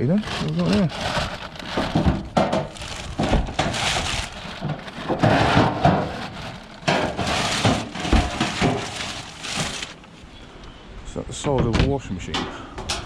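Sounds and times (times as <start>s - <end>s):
junk being rummaged through: 0.0s - 10.2s.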